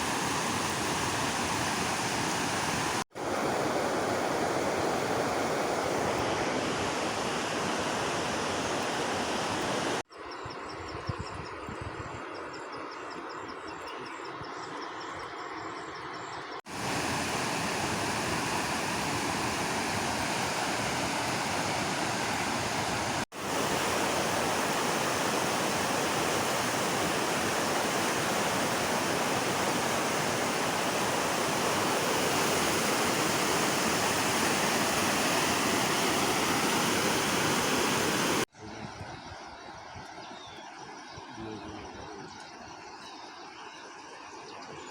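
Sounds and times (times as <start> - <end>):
water rushing: 0.0 - 10.0, 16.7 - 38.5.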